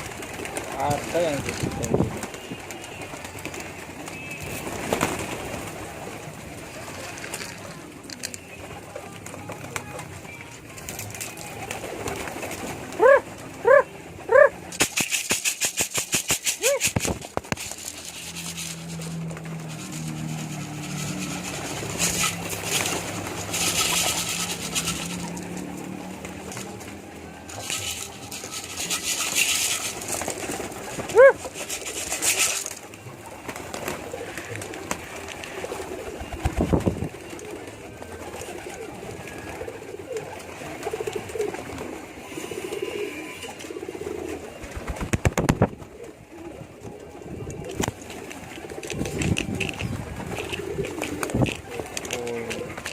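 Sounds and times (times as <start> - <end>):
pigeons cooing: 11.7 - 14.7, 16.4 - 52.9
rustling: 14.8 - 25.7, 27.5 - 32.9.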